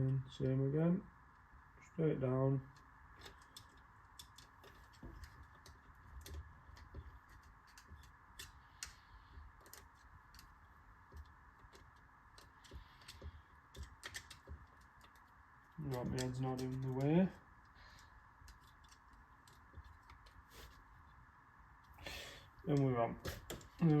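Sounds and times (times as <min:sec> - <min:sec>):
faint steady hum: 0:00.0 - 0:24.0
small metallic clicks and taps: 0:02.7 - 0:17.1.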